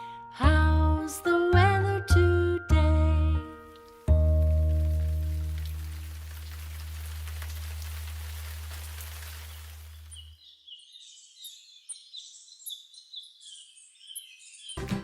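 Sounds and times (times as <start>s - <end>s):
birds chirping: 4.4s - 15.0s.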